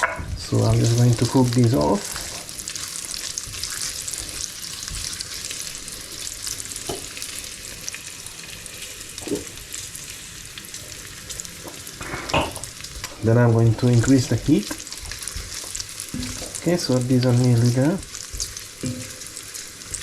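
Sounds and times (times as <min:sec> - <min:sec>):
fat sizzling in a frying pan: 0:00.0 - 0:20.0.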